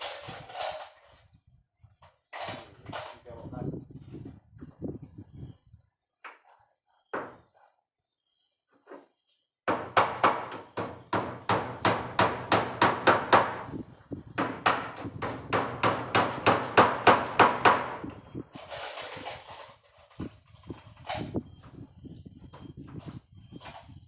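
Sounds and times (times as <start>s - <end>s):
hammer striking nails: 9.7s - 13.8s, 14.4s - 18.1s
brief scraping noise: 18.5s - 21.5s.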